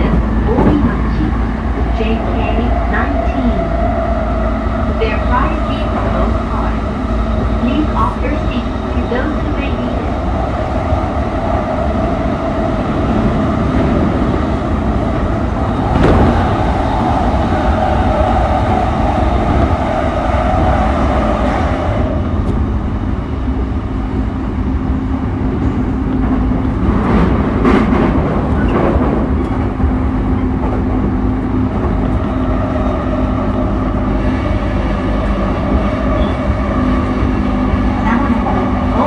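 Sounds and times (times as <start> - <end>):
train motor hum: 0.0 - 39.0
train wheels rumbling on rail: 0.0 - 39.0
noisy rush passing: 10.4 - 20.2.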